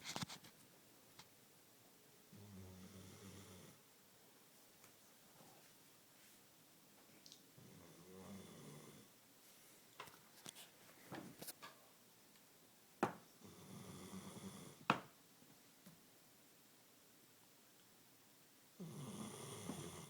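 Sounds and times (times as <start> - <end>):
dog snoring softly: 2.4 - 3.8, 7.6 - 9.1, 13.4 - 14.8, 18.8 - 20.0.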